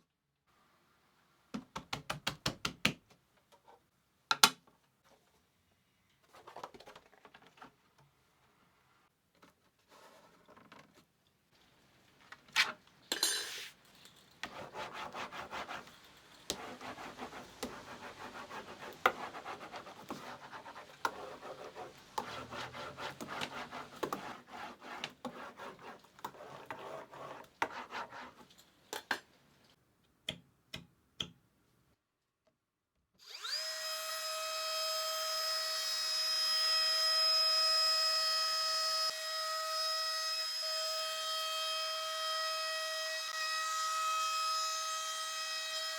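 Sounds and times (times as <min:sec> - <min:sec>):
scraping and rubbing wood: 0:14.4 - 0:29.2
power tool motor whine: 0:33.2 - 0:34.4.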